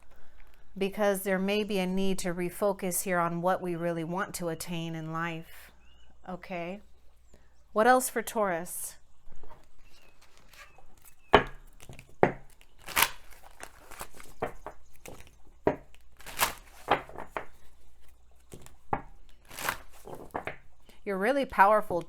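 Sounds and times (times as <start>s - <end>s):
cards shuffling: 9.6s - 20.8s
cards snapping: 10.1s - 17.6s, 18.4s - 20.6s.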